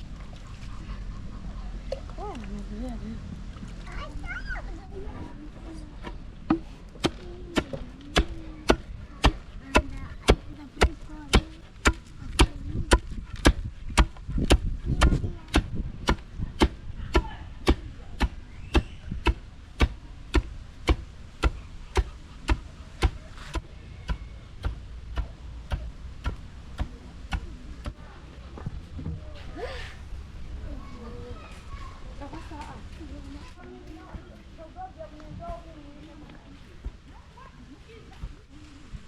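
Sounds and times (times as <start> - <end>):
blade chopping on hard surface: 6.5 - 28.0.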